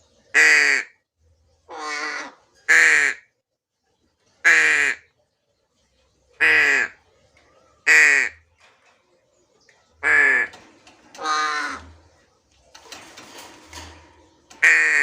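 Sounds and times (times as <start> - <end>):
crow cawing: 1.7 - 3.2, 7.8 - 8.4, 10.0 - 12.0, 14.6 - 15.0.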